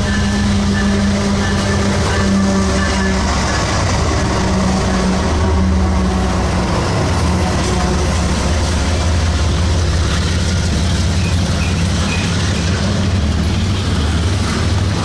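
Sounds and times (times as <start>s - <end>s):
diesel locomotive engine drone: 0.0s - 15.0s
freight cars rolling by: 0.0s - 15.0s
train noise: 0.0s - 15.0s.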